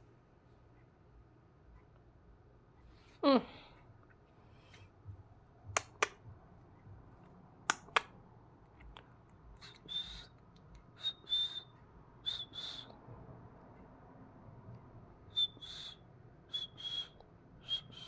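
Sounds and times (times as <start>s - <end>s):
sharp clicks: 5.7s - 6.2s, 7.7s - 8.2s
high whistled notes: 10.9s - 12.9s, 15.3s - 18.0s.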